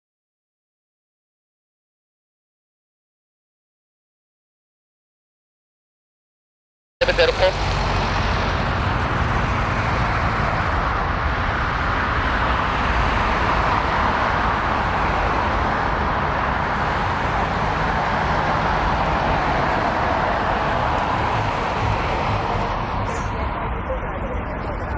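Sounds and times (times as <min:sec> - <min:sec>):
jet engines running: 0:07.0 - 0:24.9.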